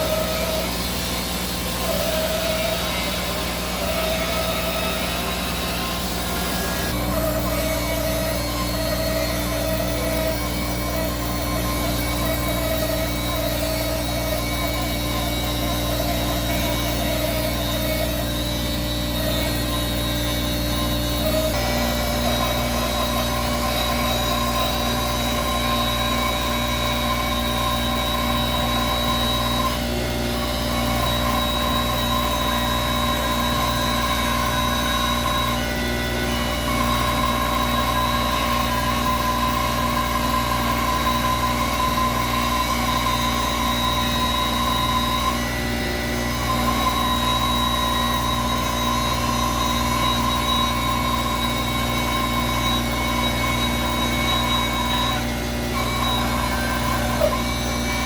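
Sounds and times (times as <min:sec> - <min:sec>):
bandsaw humming and whining: 0:00.0 - 0:58.0.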